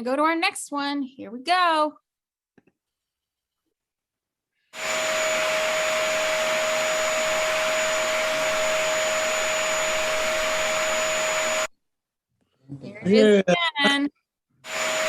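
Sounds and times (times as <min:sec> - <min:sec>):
vacuum cleaner running: 0:04.8 - 0:11.7, 0:14.7 - 0:15.0.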